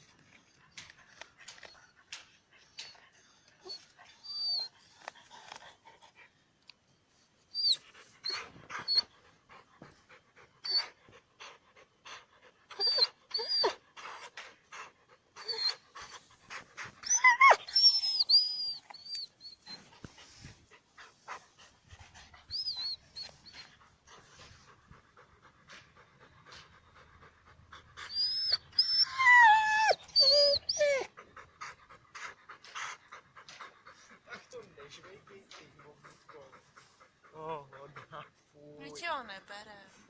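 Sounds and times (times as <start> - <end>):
dog panting: 0.1 - 6.5, 7.6 - 39.2
dog whining: 3.6 - 5.0, 7.5 - 9.1, 10.6 - 10.9, 12.7 - 14.2, 15.4 - 16.2, 17.0 - 19.9, 22.4 - 23.8, 28.0 - 31.1.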